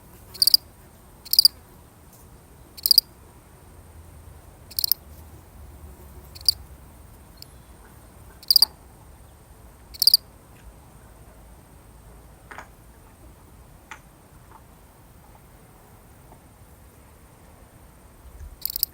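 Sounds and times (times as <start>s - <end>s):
cricket chirping: 0.3s - 1.6s, 2.7s - 3.2s, 4.6s - 5.0s, 6.2s - 8.8s, 9.9s - 10.3s, 18.6s - 18.9s.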